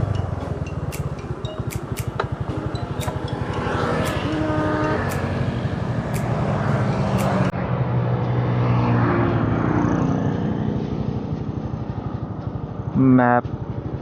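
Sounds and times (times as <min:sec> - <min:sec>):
scooter engine running: 0:00.0 - 0:07.5, 0:09.9 - 0:14.0
sharp ticks: 0:00.0 - 0:07.5.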